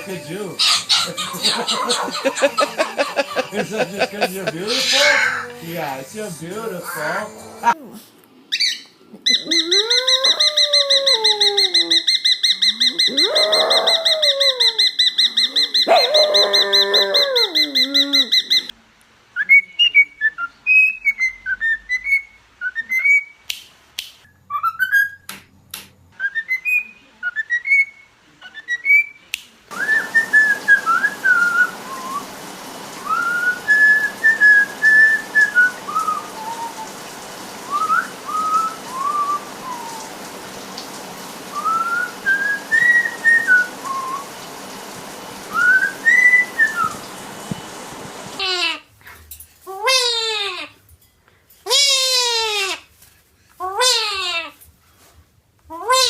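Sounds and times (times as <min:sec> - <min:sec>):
birds whistling: 0:08.6 - 0:18.7, 0:29.7 - 0:37.0, 0:37.6 - 0:40.2, 0:41.5 - 0:44.4, 0:45.5 - 0:47.2.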